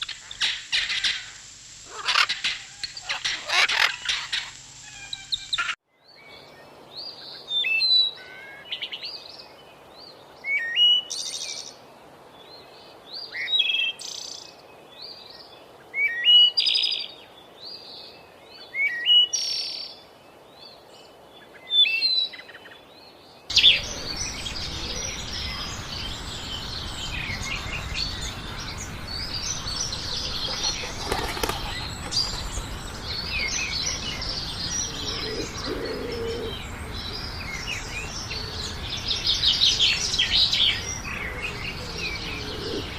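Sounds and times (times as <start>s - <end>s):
steady hiss: 0.0s - 5.8s, 23.5s - 42.9s
birds chirping: 0.0s - 7.4s, 23.4s - 42.9s.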